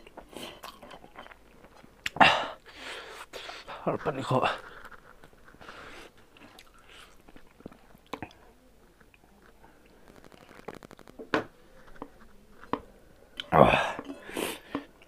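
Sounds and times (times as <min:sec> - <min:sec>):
chewing and mouth smacks: 0:00.0 - 0:02.2, 0:04.7 - 0:08.4.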